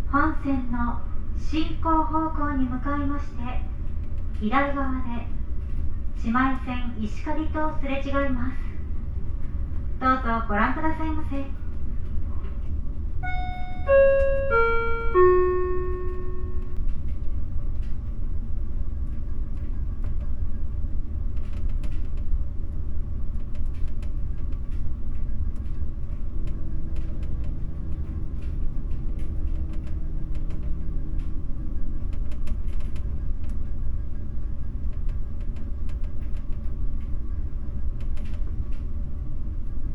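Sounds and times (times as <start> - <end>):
ferry engine rumble: 0.0 - 39.9
announcement chime: 13.2 - 16.8.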